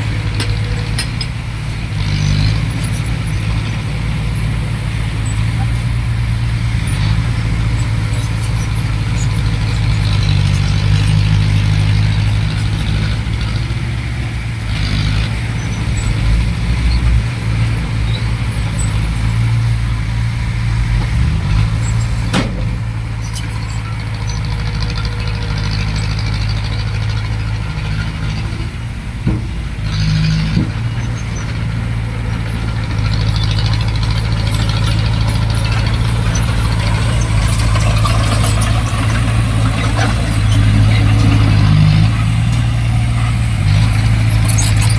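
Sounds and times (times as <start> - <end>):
heavy diesel engines running: 0.0 - 44.9.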